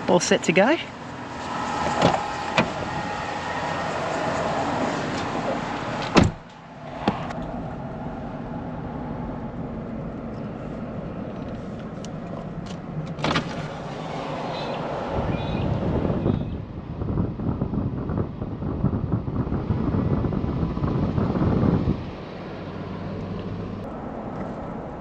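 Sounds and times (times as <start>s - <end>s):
car door shutting: 1.8s - 3.0s, 6.0s - 7.5s, 12.3s - 14.8s.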